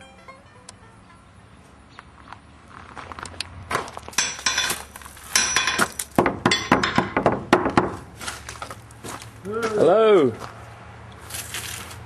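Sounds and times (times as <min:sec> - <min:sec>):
metal clinking and clattering: 0:04.1 - 0:07.3.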